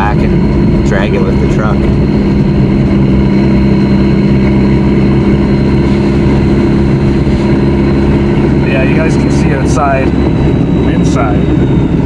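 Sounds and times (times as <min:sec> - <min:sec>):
diesel engine droning in cabin: 0:00.0 - 0:12.0
low road rumble: 0:00.0 - 0:12.0.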